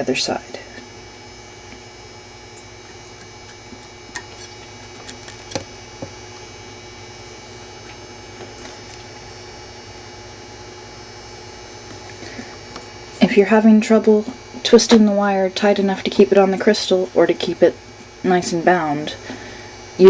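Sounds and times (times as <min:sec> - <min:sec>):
electrical hum: 0:00.0 - 0:20.0
wire twisting clicks: 0:03.2 - 0:05.7.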